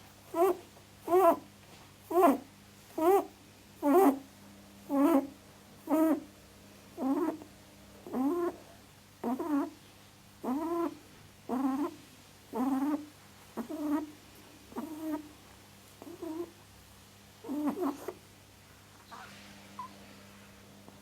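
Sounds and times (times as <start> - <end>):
animal calling: 0.3 - 1.4, 2.1 - 2.4, 3.0 - 4.2, 4.9 - 5.3, 5.9 - 6.3, 7.0 - 8.6, 9.2 - 9.8, 10.4 - 14.1, 14.7 - 15.3.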